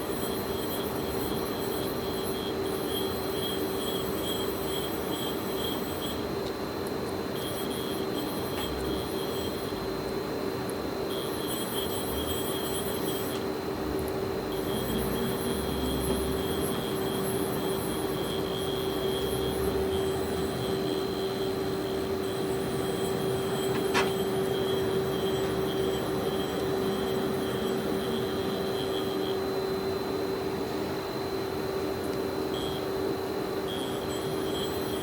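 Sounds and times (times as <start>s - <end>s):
machine electrical hum: 0.0s - 35.0s
high whine: 11.1s - 35.0s.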